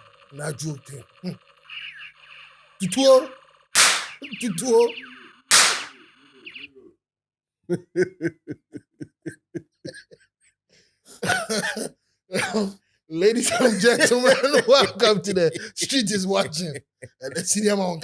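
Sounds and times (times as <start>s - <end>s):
toy gun bang: 3.8s - 4.2s, 5.5s - 6.0s
person laughing: 7.7s - 10.2s, 13.5s - 15.0s.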